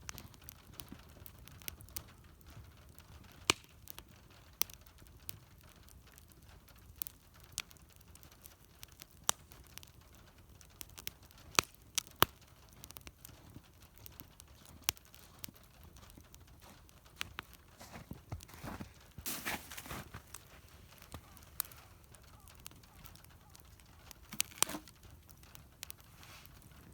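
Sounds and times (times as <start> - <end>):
wood fire crackling and popping: 0.0 - 26.9
louder rustle: 18.5 - 20.4.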